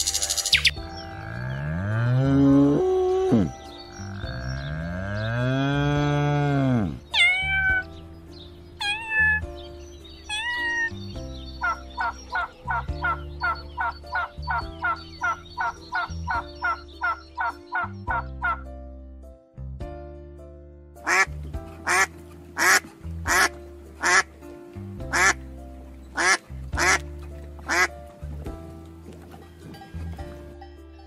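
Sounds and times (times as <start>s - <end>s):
turkey calling: 0.0s - 0.8s, 11.6s - 18.7s
soft background music: 0.0s - 31.0s
cows mooing: 1.0s - 7.1s
kitten mewing: 7.1s - 7.9s, 10.3s - 10.9s.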